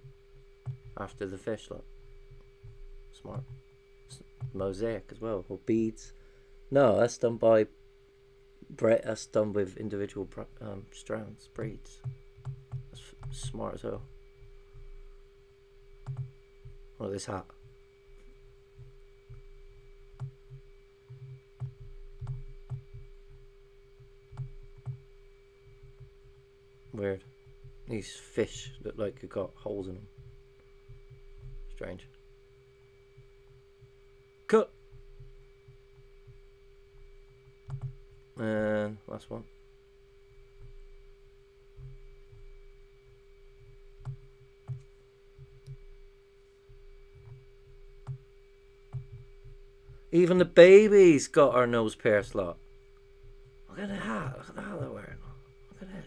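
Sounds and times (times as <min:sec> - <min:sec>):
soft low thumps: 0:00.0 - 0:05.3, 0:10.2 - 0:38.4, 0:39.4 - 0:50.2, 0:52.2 - 0:55.8
steady low hum: 0:00.0 - 0:56.0
computer mouse clicks: 0:16.0 - 0:16.3, 0:37.6 - 0:38.0.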